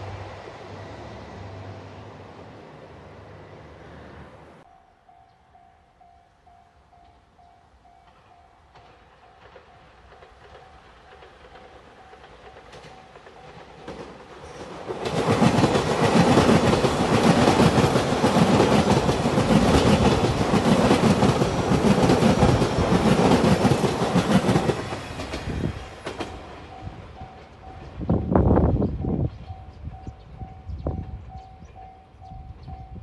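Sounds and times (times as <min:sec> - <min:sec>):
train wheels clattering on rails: 0:08.0 - 0:33.0.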